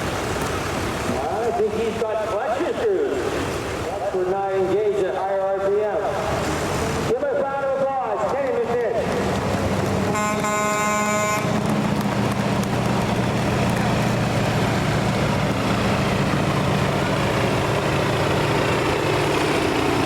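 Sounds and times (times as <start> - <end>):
truck engine running: 8.4 - 20.0
horn blast: 10.0 - 11.7.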